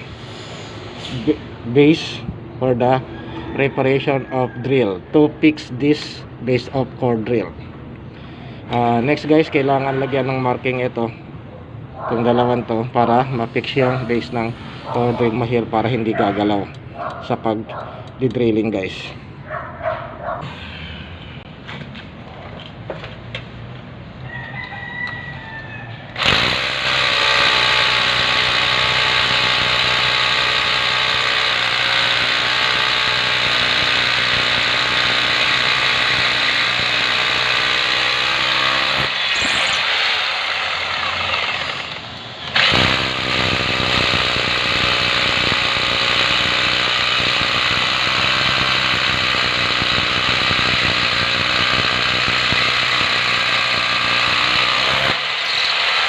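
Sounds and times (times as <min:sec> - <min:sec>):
power drill boring into concrete: 0:26.2 - 0:56.0.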